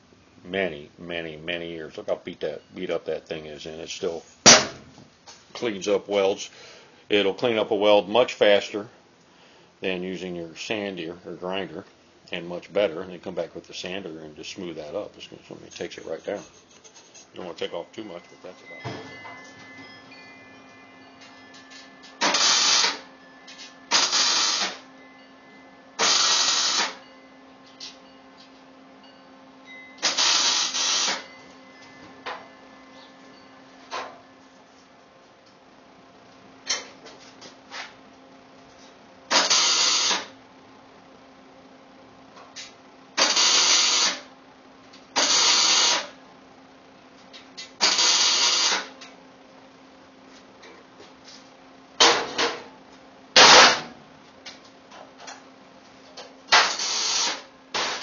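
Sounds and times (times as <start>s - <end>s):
low steady hum: 0.0s - 39.4s
welding arc crackling: 22.1s - 23.0s, 23.6s - 24.8s, 26.0s - 27.0s, 30.0s - 31.3s, 56.5s - 58.0s
welder crackling and sizzling: 56.6s - 58.0s.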